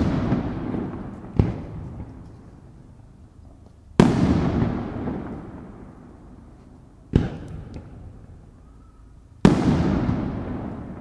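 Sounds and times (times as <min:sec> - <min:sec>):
firework shells booming: 0:00.0 - 0:02.4, 0:04.0 - 0:06.1, 0:07.1 - 0:08.3, 0:09.4 - 0:11.0
firework crackles: 0:00.0 - 0:08.3, 0:09.4 - 0:11.0.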